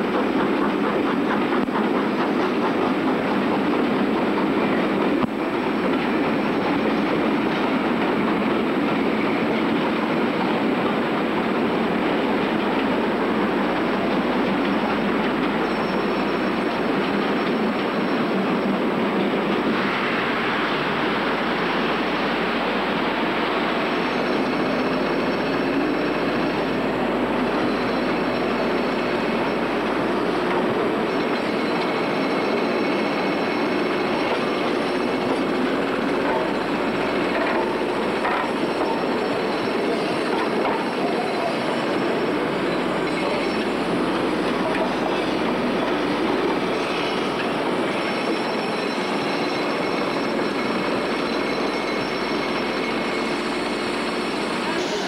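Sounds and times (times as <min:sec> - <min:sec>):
train rolling rail noise: 0:00.0 - 0:55.0
wheel squeal: 0:15.5 - 0:18.6, 0:24.0 - 0:26.7, 0:27.6 - 0:29.7, 0:36.2 - 0:42.0, 0:44.4 - 0:55.0
wheels clicking over rail joints: 0:34.2 - 0:41.6.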